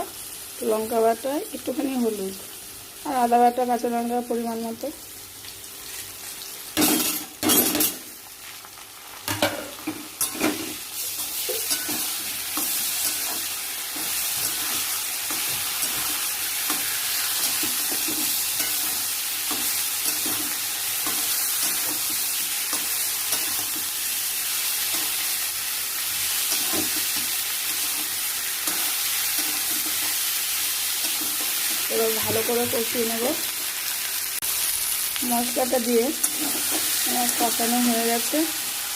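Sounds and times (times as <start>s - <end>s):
vegetables sizzling in oil: 0.0s - 38.9s
spatula scraping a pan: 36.2s - 37.4s.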